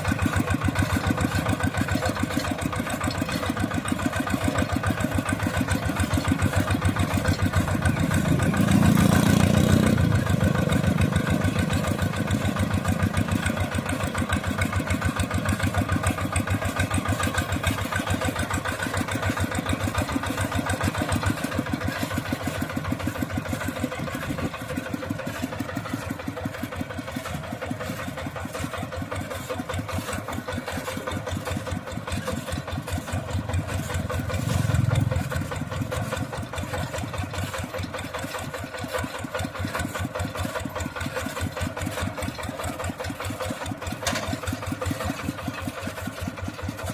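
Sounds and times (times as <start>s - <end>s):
tractor engine chugging: 0.0s - 46.9s.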